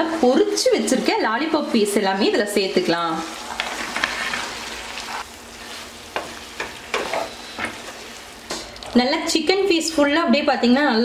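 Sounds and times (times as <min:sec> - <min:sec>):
sauce sizzling in a pan: 0:00.0 - 0:09.7
wooden spatula knocking a pan: 0:06.1 - 0:07.8.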